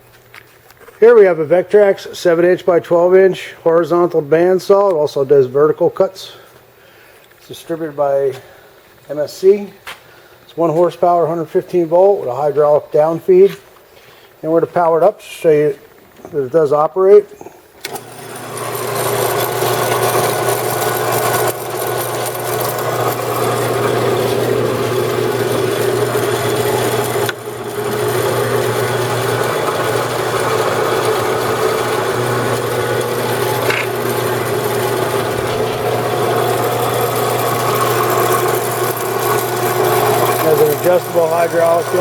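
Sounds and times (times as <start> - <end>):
band saw motor humming: 17.8 - 42.0.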